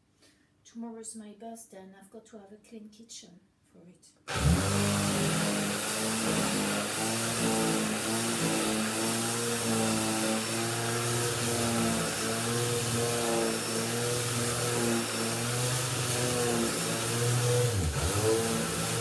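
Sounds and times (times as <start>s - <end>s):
power tool motor humming: 4.3s - 19.0s.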